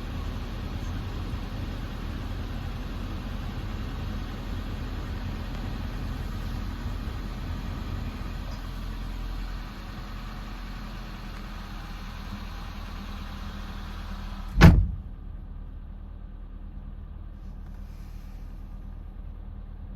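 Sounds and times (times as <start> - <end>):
car engine idling: 0.0 - 19.9
car door slam: 14.5 - 15.2.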